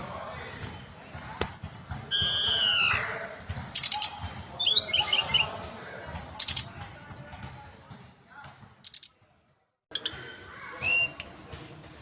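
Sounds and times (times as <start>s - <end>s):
songbird singing: 1.4s - 3.0s.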